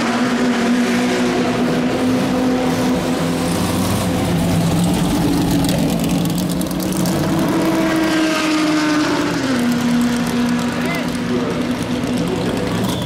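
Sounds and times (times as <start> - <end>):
race car engine at low revs: 0.0 - 13.0.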